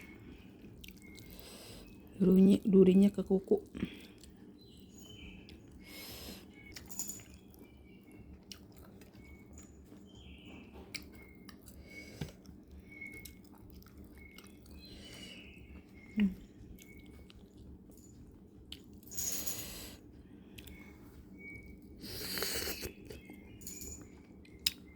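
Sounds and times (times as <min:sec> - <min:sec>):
chewing and mouth clicks: 0:00.1 - 0:02.1, 0:03.5 - 0:05.8, 0:06.5 - 0:19.1, 0:20.5 - 0:24.9
faint high chirps: 0:04.6 - 0:18.3, 0:19.1 - 0:24.9.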